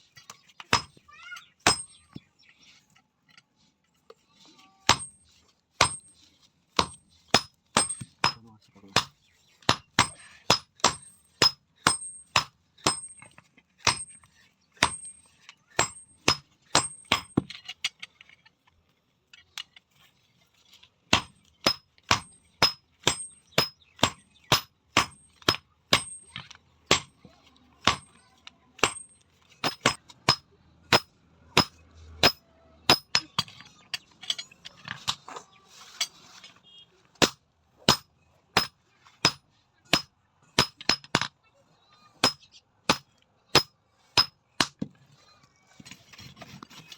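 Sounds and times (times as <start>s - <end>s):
hammer striking steel on anvil: 6.8s - 8.4s, 9.0s - 17.4s, 21.2s - 27.1s, 27.8s - 28.2s, 28.8s - 33.5s, 37.2s - 41.3s, 42.2s - 44.8s.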